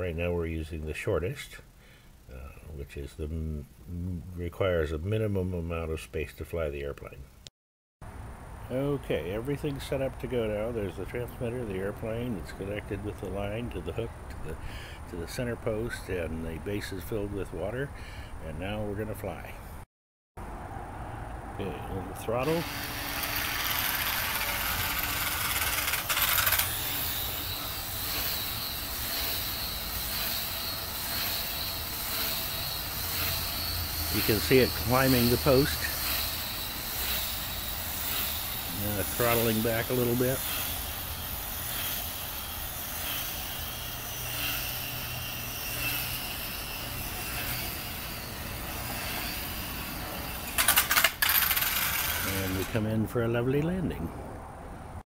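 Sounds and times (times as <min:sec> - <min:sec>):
model plane electric motor whine: 0:22.4 - 0:52.8
model plane landing clatter: 0:22.5 - 0:26.8, 0:50.5 - 0:52.8.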